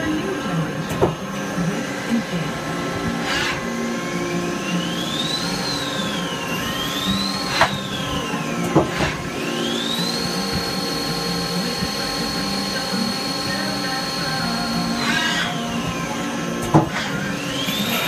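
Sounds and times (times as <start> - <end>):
lathe high whine: 0.0 - 18.0.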